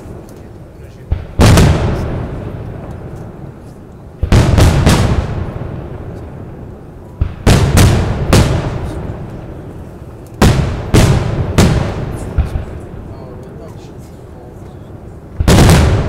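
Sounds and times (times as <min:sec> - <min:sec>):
firework shells bursting: 0:15.3 - 0:16.0.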